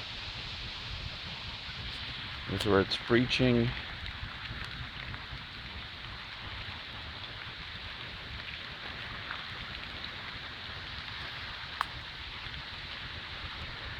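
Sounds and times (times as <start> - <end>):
water rushing through a ditch: 0.0 - 13.9.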